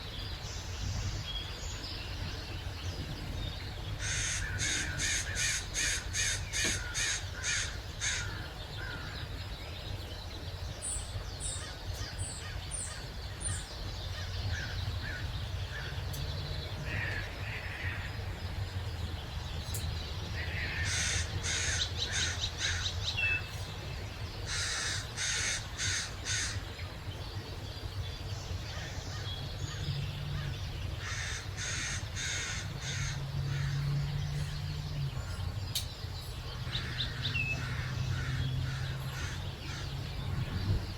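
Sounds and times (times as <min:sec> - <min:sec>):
steady low rumble: 0:00.0 - 0:40.9
crows cawing: 0:04.0 - 0:09.4, 0:14.2 - 0:16.0, 0:16.8 - 0:18.2, 0:20.4 - 0:23.0, 0:24.5 - 0:26.7, 0:28.7 - 0:34.0, 0:36.6 - 0:40.0.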